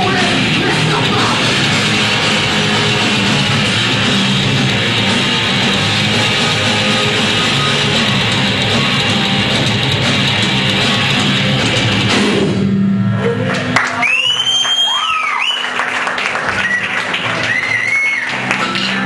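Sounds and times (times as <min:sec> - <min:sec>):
heavy metal band playing live: 0:00.0 - 0:12.9.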